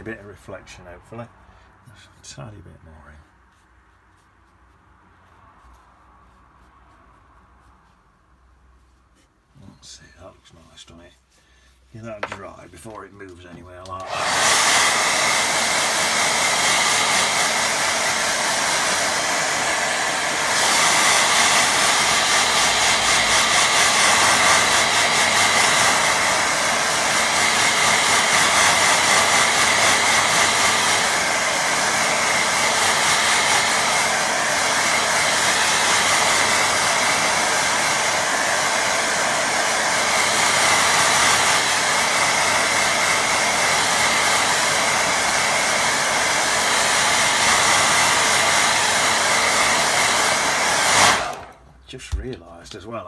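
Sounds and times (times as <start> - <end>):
hair dryer blowing: 13.7 - 52.2.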